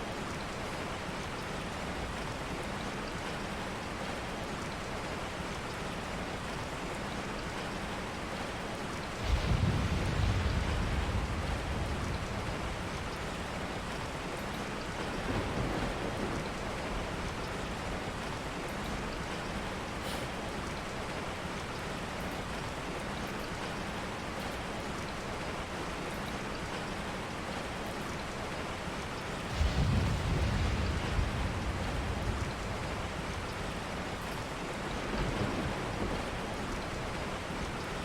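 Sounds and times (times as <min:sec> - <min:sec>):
steady rain: 0:00.0 - 0:38.0
thunder rumble: 0:09.2 - 0:18.5, 0:29.4 - 0:38.0.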